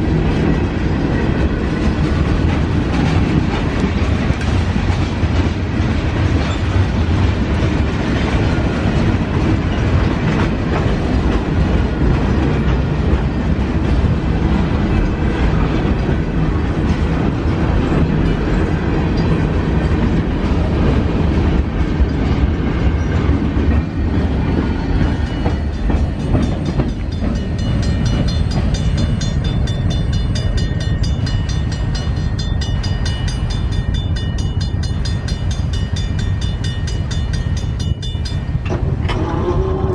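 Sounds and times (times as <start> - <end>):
train rumbling past: 0.0 - 39.9
high repeating ringing: 25.1 - 38.6.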